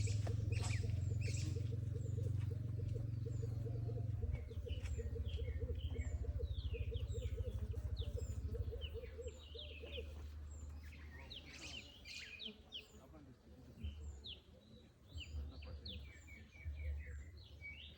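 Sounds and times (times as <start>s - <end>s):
low pulsing calls: 0.0s - 10.2s
small birds chirping: 0.0s - 17.9s.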